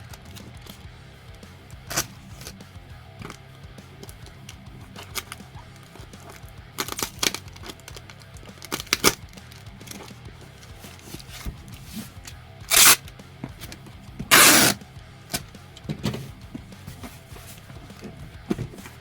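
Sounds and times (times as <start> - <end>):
sharp handling clicks: 3.2 - 11.5, 12.2 - 16.2
packing tape pulled off roll: 12.7 - 13.0, 14.3 - 15.4.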